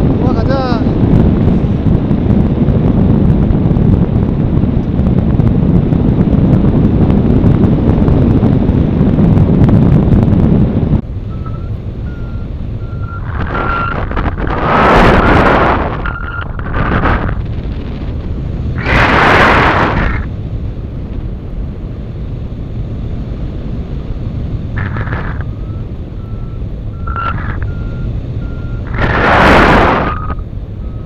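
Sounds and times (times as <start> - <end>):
wind buffeting microphone: 0.0 - 31.0
variometer short beeps: 11.3 - 14.1, 25.4 - 29.0, 29.9 - 31.0.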